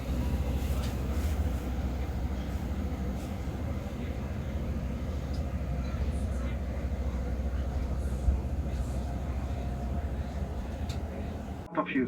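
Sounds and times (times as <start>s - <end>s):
airliner cabin rumble: 0.0s - 11.7s
faint clicks: 5.2s - 5.5s, 10.4s - 11.6s.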